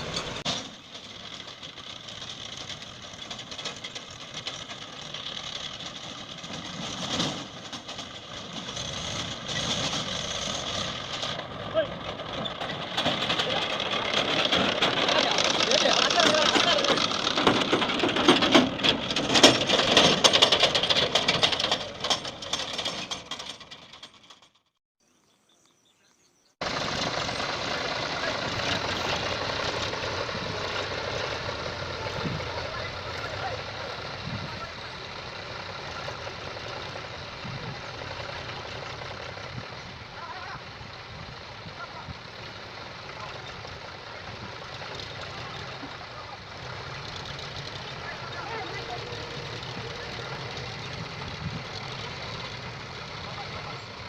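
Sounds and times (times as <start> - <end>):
farm machinery engine rattling: 0.0 - 24.8, 26.6 - 54.0.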